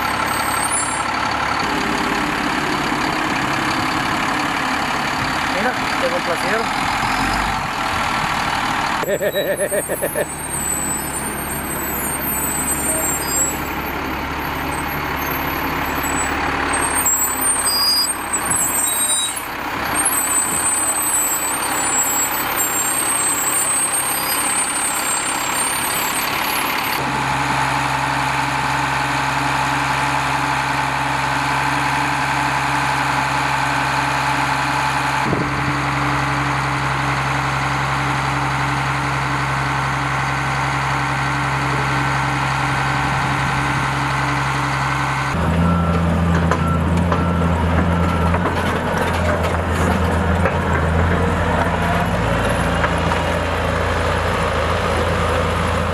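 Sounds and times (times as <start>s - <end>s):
high squealing: 9.0s - 27.0s.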